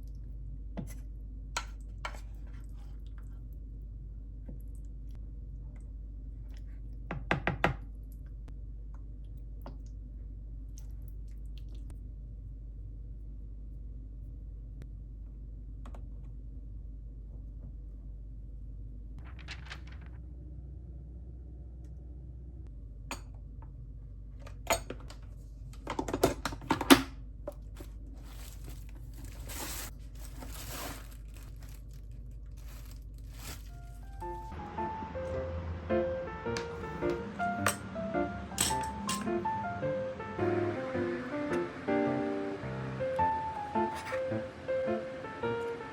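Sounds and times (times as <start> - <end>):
low hum: 8.0 - 24.5, 27.3 - 45.9
rustling: 19.2 - 20.2, 27.7 - 34.5
crinkling and tearing: 28.1 - 34.5.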